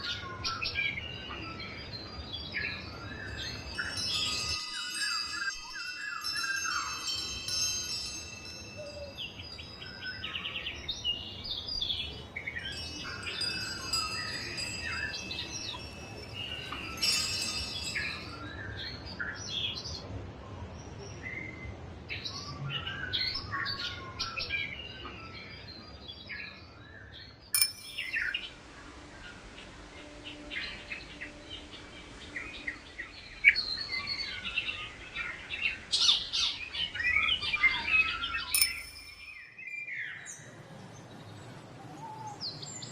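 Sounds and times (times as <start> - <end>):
songbirds chirping and trilling: 0.0 - 42.9
wind chimes ringing: 1.4 - 19.2, 27.6 - 28.6, 35.9 - 40.0.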